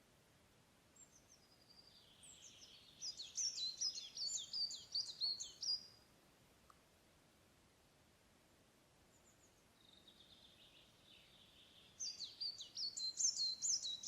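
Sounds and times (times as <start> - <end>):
songbird whistling: 2.4 - 5.9, 12.0 - 14.0.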